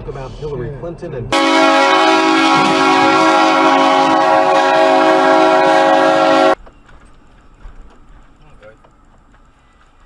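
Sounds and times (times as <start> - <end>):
train horn blast: 1.3 - 6.6.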